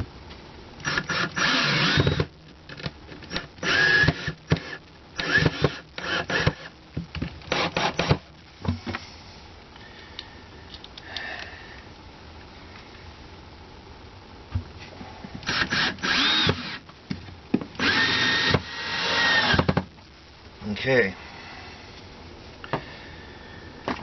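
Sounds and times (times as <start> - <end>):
power drill whirring: 0.8 - 2.3, 3.3 - 6.7, 7.5 - 8.2, 15.4 - 16.8, 17.8 - 19.8.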